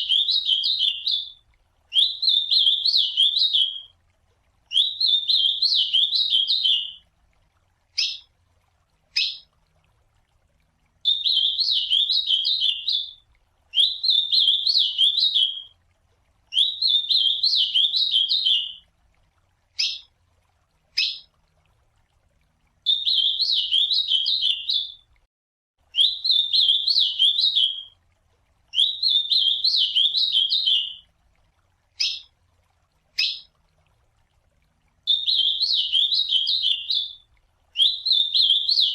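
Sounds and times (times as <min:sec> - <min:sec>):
bird singing warbled phrases: 0:00.0 - 0:03.9, 0:04.7 - 0:07.0, 0:08.0 - 0:08.3, 0:09.1 - 0:09.5, 0:11.0 - 0:15.7, 0:16.5 - 0:18.8, 0:19.8 - 0:20.1, 0:21.0 - 0:21.3, 0:22.9 - 0:25.0, 0:26.0 - 0:27.9, 0:28.7 - 0:31.0, 0:32.0 - 0:32.3, 0:33.2 - 0:33.5, 0:35.1 - 0:37.2, 0:37.8 - 0:38.9.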